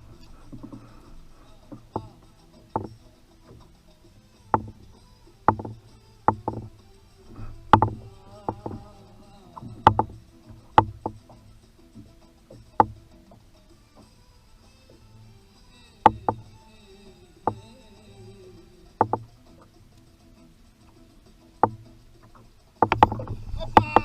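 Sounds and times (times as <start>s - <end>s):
water washing: 0.0s - 24.0s
knocks against kayak hull: 1.7s - 3.6s, 4.6s - 8.8s, 9.6s - 11.4s, 12.0s - 13.0s, 16.0s - 16.5s, 19.0s - 19.3s, 21.6s - 24.0s.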